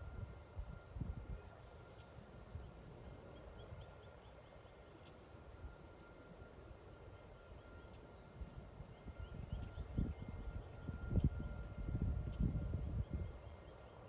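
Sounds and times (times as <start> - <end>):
bird chirping: 1.4 - 5.4.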